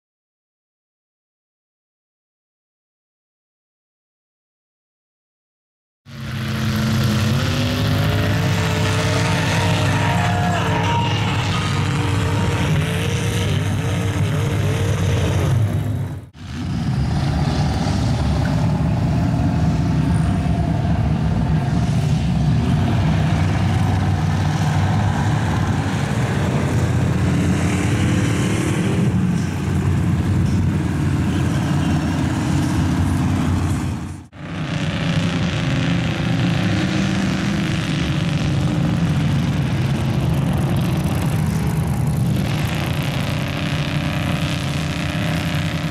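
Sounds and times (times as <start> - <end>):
truck engines running loudly: 6.1 - 45.9.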